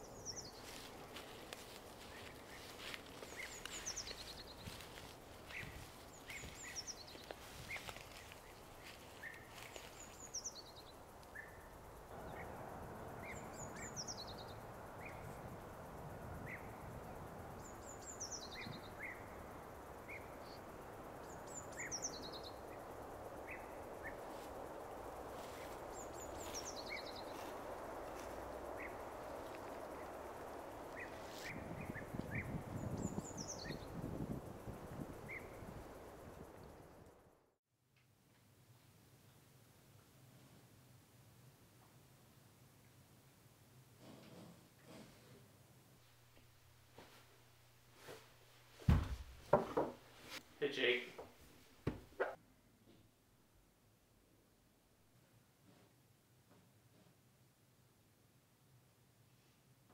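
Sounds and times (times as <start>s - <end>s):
background hiss: 0.0s - 59.9s
bird chirps: 2.1s - 8.1s.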